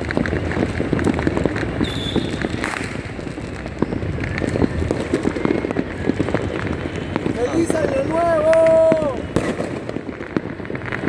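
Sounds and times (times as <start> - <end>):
fireworks crackling and banging: 0.0 - 11.0
high whistle-like tone: 1.8 - 2.8.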